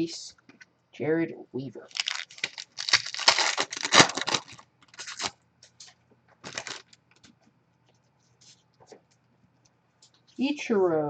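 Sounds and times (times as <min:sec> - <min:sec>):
card pack wrapper tearing and crinkling: 0:01.9 - 0:05.4, 0:06.4 - 0:07.0.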